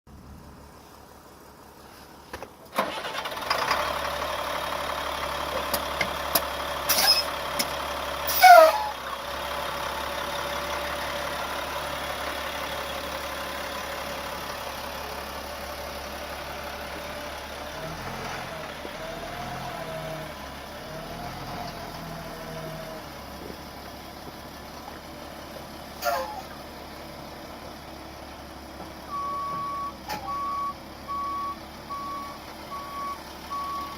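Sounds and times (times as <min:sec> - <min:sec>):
bus engine idling: 0:00.1 - 0:33.9
loud squeal falling in pitch: 0:06.9 - 0:07.3, 0:08.3 - 0:09.0.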